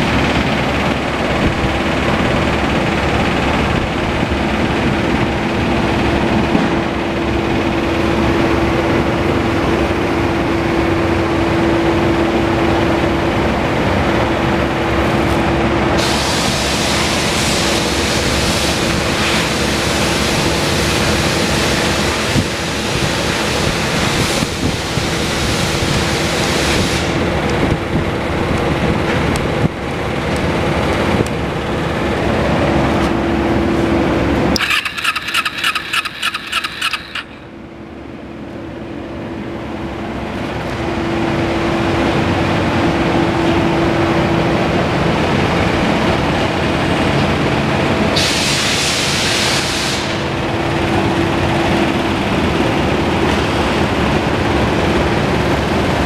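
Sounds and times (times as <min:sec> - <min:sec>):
motorcycle engine running: 0:27.3 - 0:37.7.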